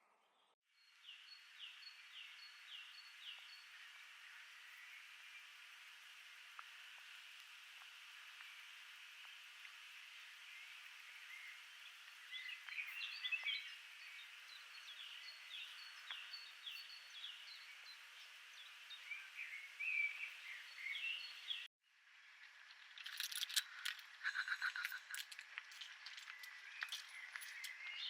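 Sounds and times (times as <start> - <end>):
steady hiss: 1.6 - 21.7
songbirds chirping and singing: 10.7 - 21.7, 23.3 - 28.0
sharp clicks and clinks: 22.9 - 28.0.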